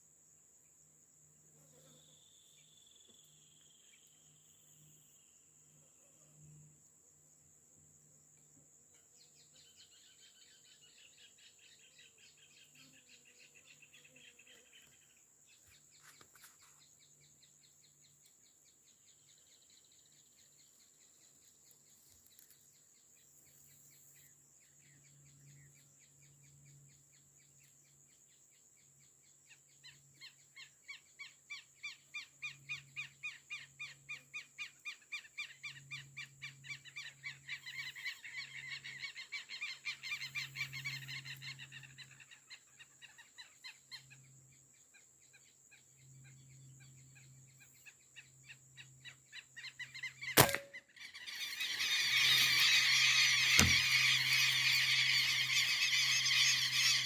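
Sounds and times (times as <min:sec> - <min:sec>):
faint high insect whine: 0:00.0 - 0:57.0
birds trilling and chirping: 0:31.9 - 0:44.4, 0:46.2 - 0:57.0.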